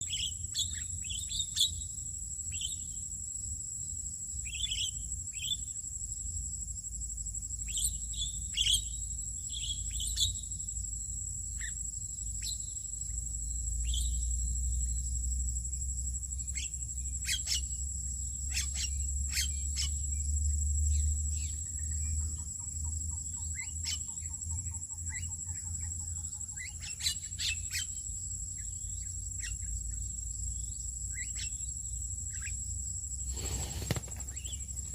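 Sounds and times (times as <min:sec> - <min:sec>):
bird chirps and calls: 0:00.0 - 0:01.9, 0:07.7 - 0:10.4, 0:18.5 - 0:20.0, 0:23.1 - 0:28.0, 0:31.1 - 0:31.7, 0:32.3 - 0:32.6
high-pitched insect drone: 0:00.0 - 0:34.9.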